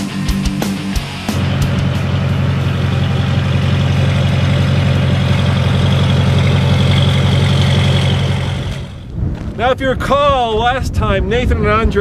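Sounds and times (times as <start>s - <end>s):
diesel engine idling: 0.8s - 9.1s.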